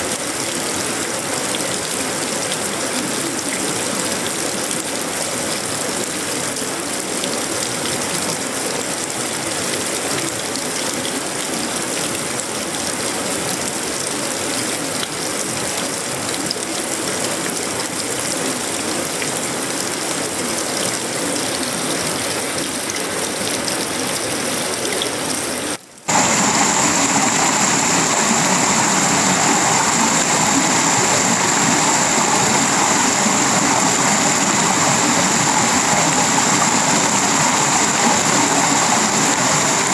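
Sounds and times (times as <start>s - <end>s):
heavy rain on metal roofing: 0.0s - 39.9s
steady high hiss: 26.1s - 39.9s.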